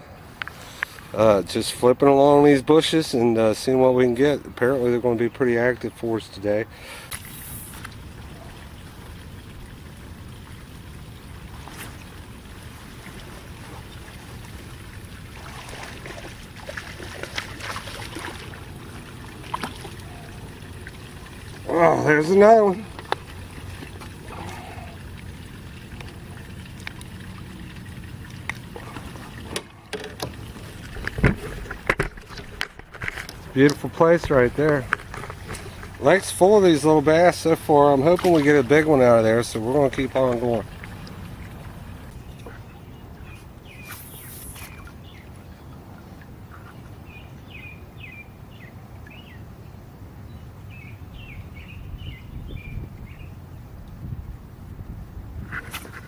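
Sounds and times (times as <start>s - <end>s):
steady low rumble: 7.4s - 43.8s
birds chirping: 18.6s - 29.6s, 33.3s - 49.5s, 50.3s - 53.4s
clicks and knocks from boat: 22.9s - 24.6s, 26.8s - 36.4s.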